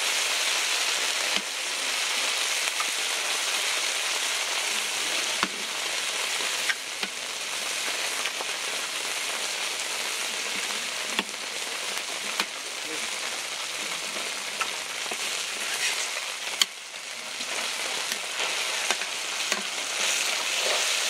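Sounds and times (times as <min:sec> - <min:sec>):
food sizzling on a griddle: 0:00.0 - 0:21.0.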